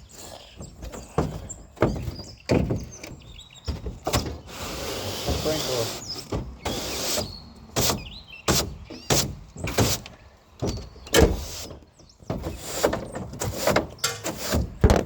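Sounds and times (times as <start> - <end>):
knocks and clanks on truck body: 0.6 - 4.5, 6.2 - 6.8, 7.7 - 15.0.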